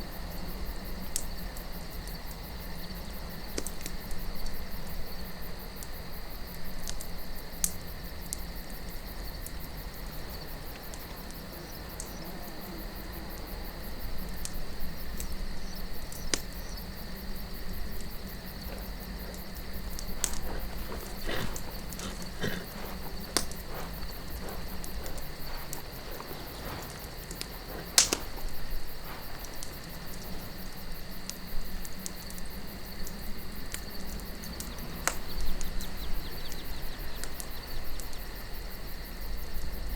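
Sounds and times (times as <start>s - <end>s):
campfire crackling: 0.0s - 39.9s
high insect trill: 0.0s - 39.9s
soft wind: 0.0s - 39.9s
sharp wood pops: 19.9s - 29.8s.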